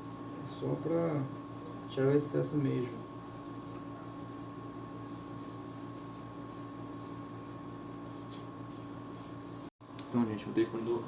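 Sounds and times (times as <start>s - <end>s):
low electrical hum: 0.0s - 11.0s
soft brush swishes: 3.5s - 9.7s.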